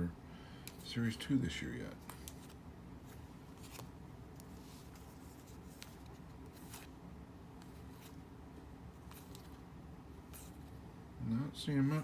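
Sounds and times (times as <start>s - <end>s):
low room hum: 0.0s - 12.0s
cards swishing: 2.0s - 7.0s.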